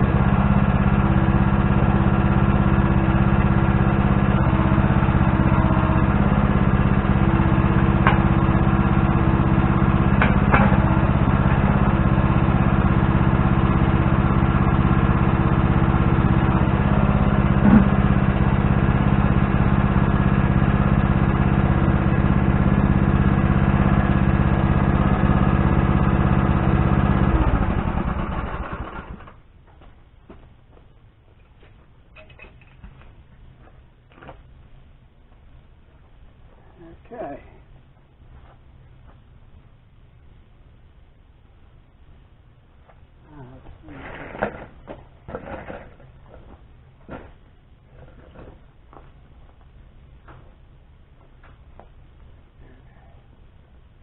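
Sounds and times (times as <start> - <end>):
engine idling: 0.0 - 29.4.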